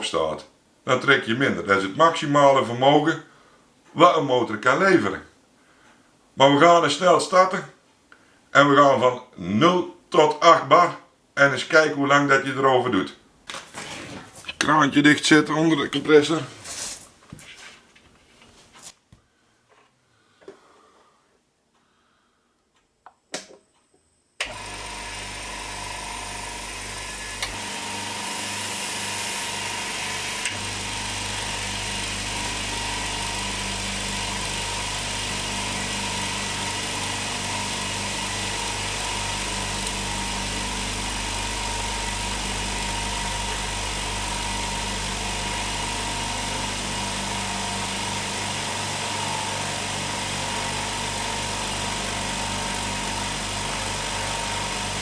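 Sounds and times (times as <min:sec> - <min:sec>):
air compressor running: 0:24.4 - 0:55.0.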